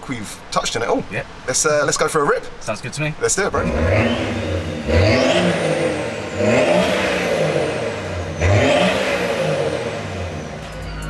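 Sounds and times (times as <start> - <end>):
diesel engine revving: 3.4 - 10.8.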